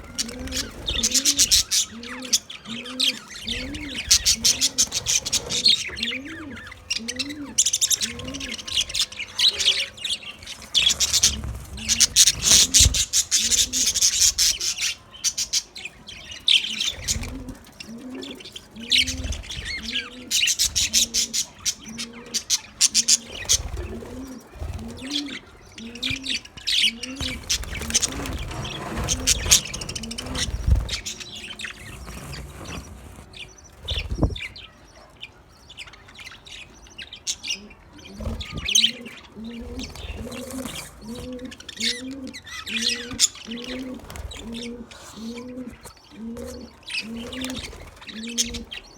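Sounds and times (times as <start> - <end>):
budgerigars chattering: 0.0 - 48.9.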